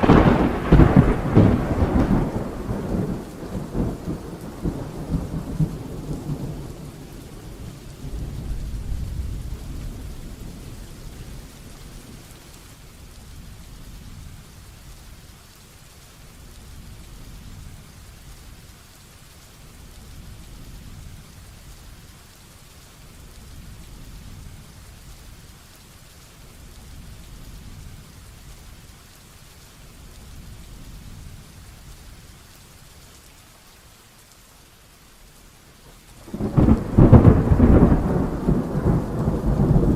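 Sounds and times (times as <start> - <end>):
thunder rumbling: 0.0 - 12.6, 36.2 - 39.9
faint distant thunder rumbles: 0.0 - 15.3, 35.8 - 39.9
steady rain: 0.0 - 39.9.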